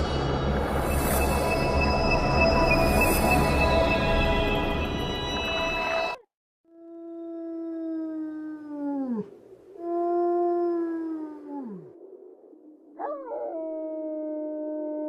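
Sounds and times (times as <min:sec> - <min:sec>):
dog howling: 0:13.0 - 0:15.0.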